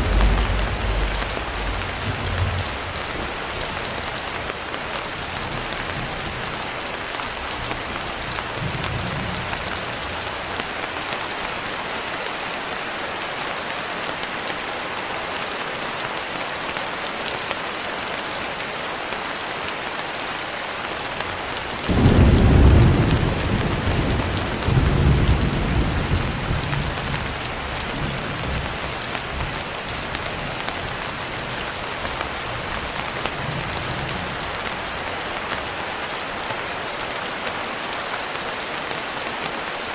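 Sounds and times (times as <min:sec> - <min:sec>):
thunder rumbling: 0:00.0 - 0:04.6, 0:21.8 - 0:29.5
steady rain: 0:00.0 - 0:39.9.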